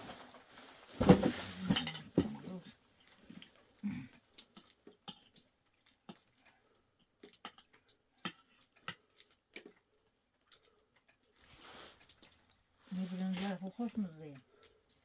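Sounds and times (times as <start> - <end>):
chewing: 3.0 - 12.7.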